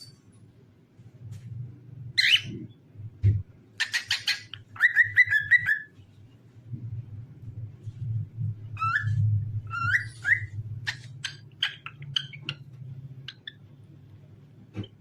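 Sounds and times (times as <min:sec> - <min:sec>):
cockatiel whistling: 0:03.8 - 0:05.9, 0:08.8 - 0:12.5
steady low hum: 0:05.9 - 0:15.0.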